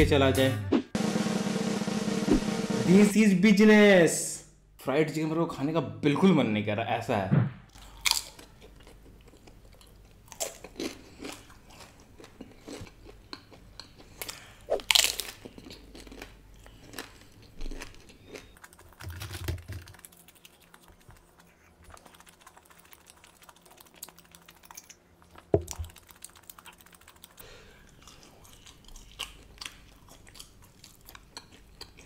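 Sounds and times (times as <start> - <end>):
sharp knock: 2.1 - 2.7
low thud: 7.3 - 7.7
chewing with crunches: 7.8 - 32.0.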